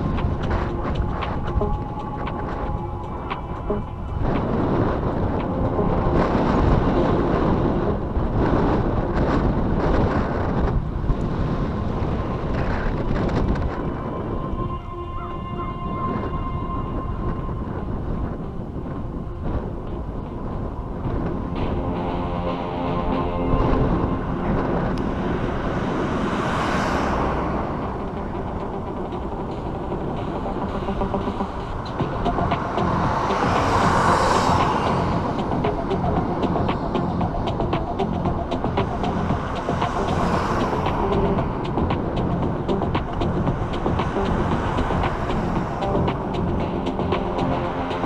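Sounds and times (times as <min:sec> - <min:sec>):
low engine hum: 0:00.0 - 0:48.0
wind buffeting microphone: 0:00.0 - 0:48.0
vehicle passing with tyre hiss: 0:25.0 - 0:48.0.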